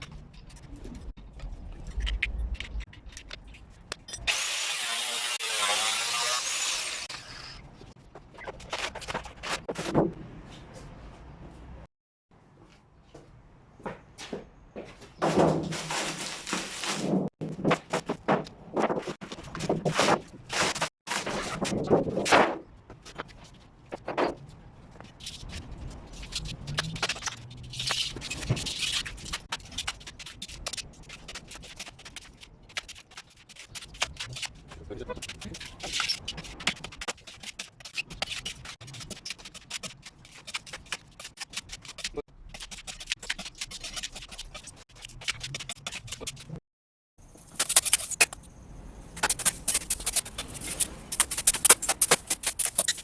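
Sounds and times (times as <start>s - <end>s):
rapid scraping and scratching: 15.2s - 46.6s, 47.3s - 48.5s, 49.1s - 53.0s
scraping and rubbing metal parts: 47.3s - 48.5s, 49.1s - 53.0s.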